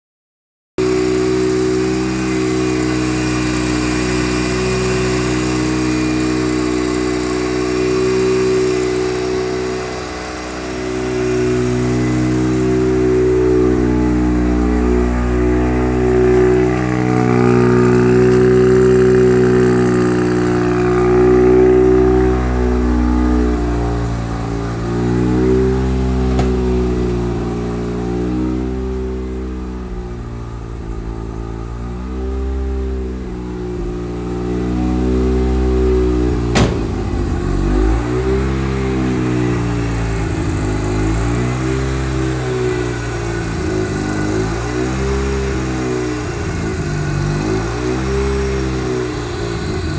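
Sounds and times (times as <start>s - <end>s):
rotary engine running: 0.8s - 22.2s.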